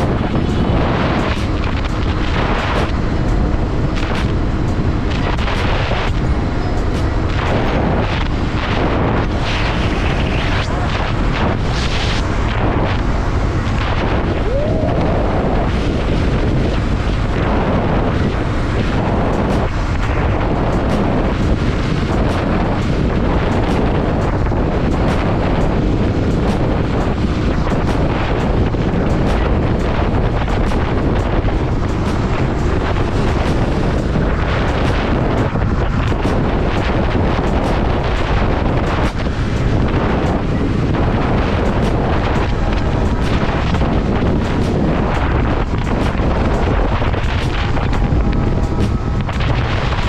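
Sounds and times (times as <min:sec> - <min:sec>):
motorcycle engine running: 0:00.0 - 0:50.0
wind buffeting microphone: 0:00.0 - 0:50.0.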